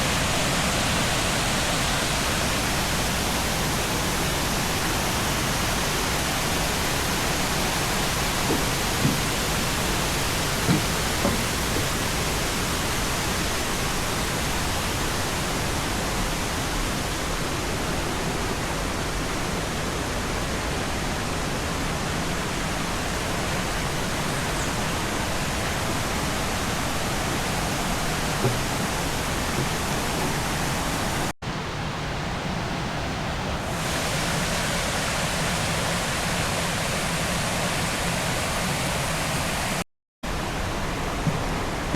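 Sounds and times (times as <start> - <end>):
waterfall rushing: 0.0 - 31.3, 33.6 - 41.9
light knocks: 7.6 - 12.1, 26.0 - 31.3.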